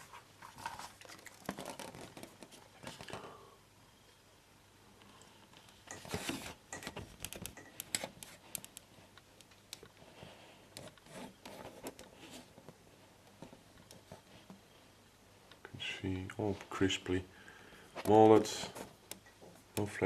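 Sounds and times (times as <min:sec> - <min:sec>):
plastic rustle: 0:00.0 - 0:03.2.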